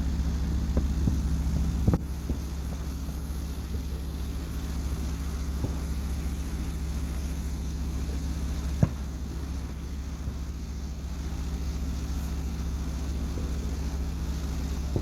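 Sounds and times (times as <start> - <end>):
low mechanical hum: 0.0 - 15.0
distant firework bang: 8.7 - 9.6.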